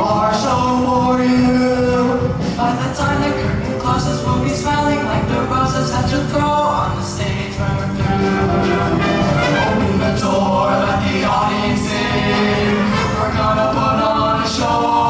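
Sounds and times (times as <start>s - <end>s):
choir singing with band: 0.0s - 15.0s.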